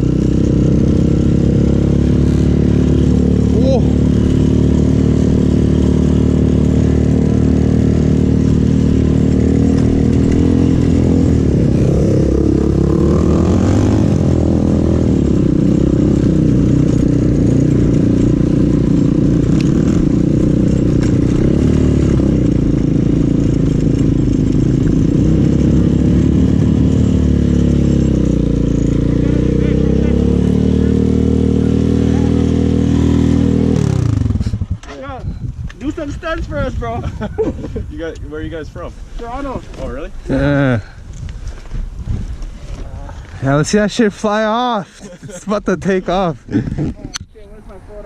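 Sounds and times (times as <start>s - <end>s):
pit bike engine revving: 0.0s - 35.1s.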